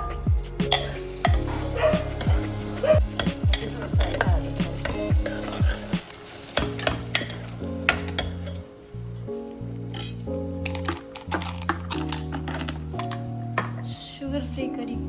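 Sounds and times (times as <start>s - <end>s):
onions sizzling in a pan: 0.7s - 11.9s
spatula scraping a pan: 3.0s - 8.6s.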